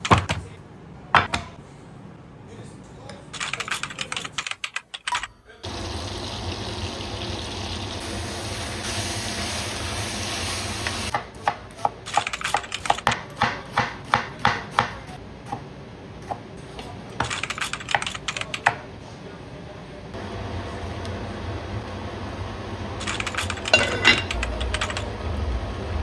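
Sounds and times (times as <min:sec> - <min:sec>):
knife chopping on cutting board: 0:11.1 - 0:15.6.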